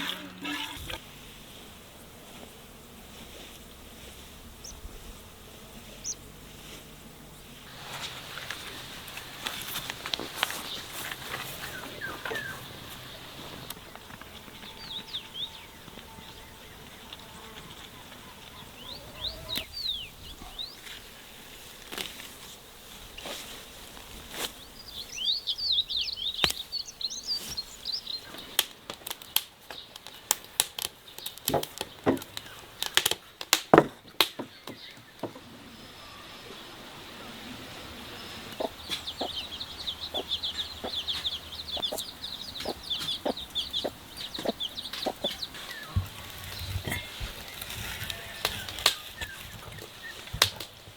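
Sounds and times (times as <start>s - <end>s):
small birds chirping: 3.4s - 21.7s, 24.2s - 50.9s
sharp clicks and knocks: 28.9s - 35.4s.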